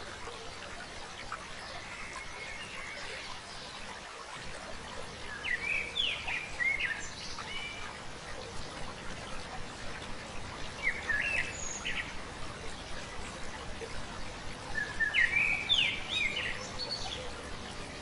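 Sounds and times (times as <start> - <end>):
flowing stream: 0.0 - 18.0
songbird chirping: 4.9 - 8.8, 10.3 - 18.0.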